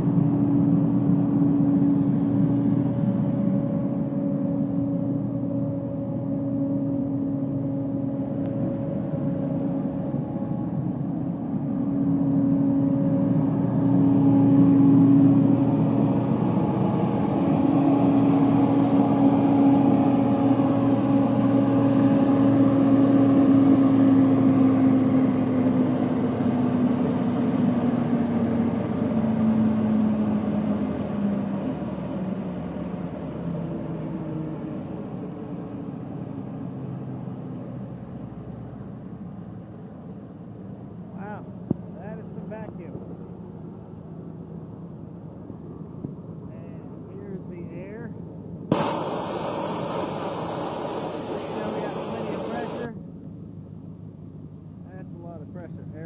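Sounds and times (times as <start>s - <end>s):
vacuum machine hum: 48.7s - 52.9s.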